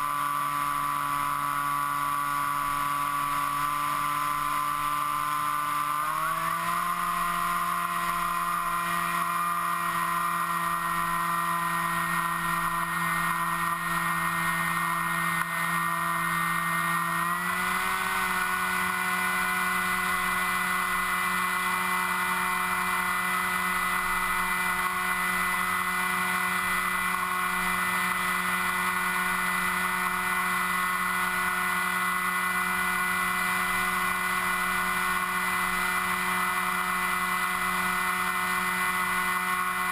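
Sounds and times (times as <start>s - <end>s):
model aircraft motor hum: 0.0s - 39.9s.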